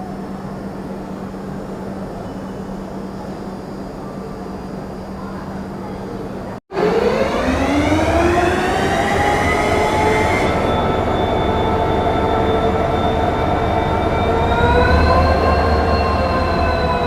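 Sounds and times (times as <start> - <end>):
diesel locomotive engine revving: 6.7 - 17.0.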